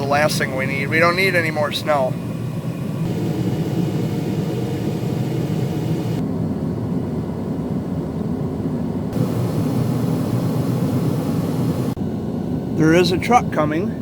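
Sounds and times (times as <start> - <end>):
vehicle engine rumble: 2.0 - 7.6, 8.8 - 13.0
faint hiss: 9.2 - 12.0.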